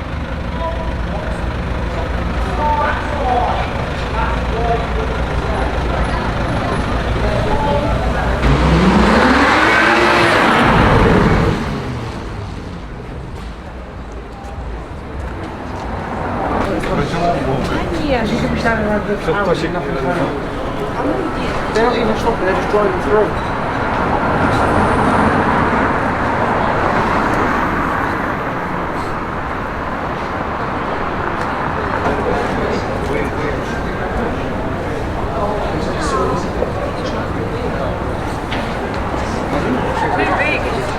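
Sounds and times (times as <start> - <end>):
car accelerating past: 0.0 - 13.1, 15.8 - 40.9
road traffic passing: 0.0 - 14.2, 14.8 - 40.9.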